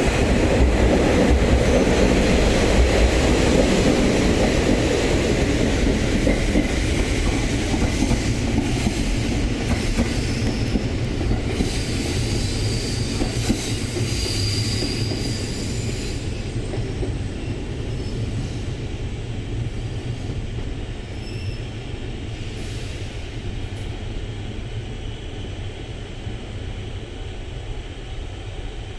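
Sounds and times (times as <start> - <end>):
train wheels clacking over joints: 0.5 - 17.2
high wheel squeal: 11.6 - 16.5, 21.1 - 21.8.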